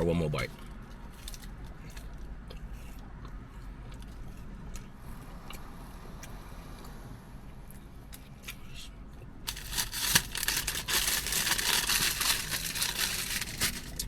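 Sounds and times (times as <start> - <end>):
paper wrapper crinkling: 9.5 - 14.0.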